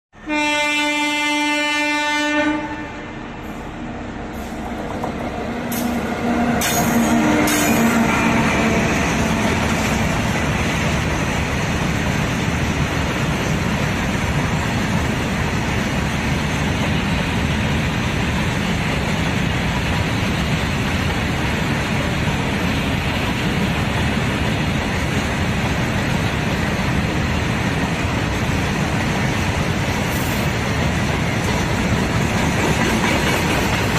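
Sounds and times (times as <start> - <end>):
locomotive horn: 0.2 - 3.4, 6.1 - 9.8
freight train rushing past: 0.2 - 33.9
wheels clickety-clack on rail: 4.4 - 33.9.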